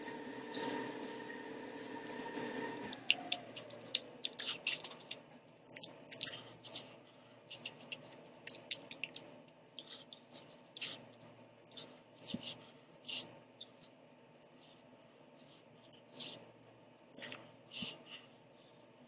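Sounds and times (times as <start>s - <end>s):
close-miked chewing noodles: 2.7s - 13.8s
wet mouth clicks and smacks: 7.6s - 11.8s.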